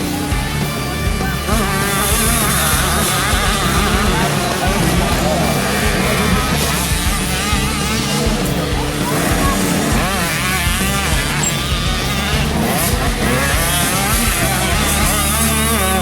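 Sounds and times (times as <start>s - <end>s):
motocross bikes revving: 0.0s - 16.0s.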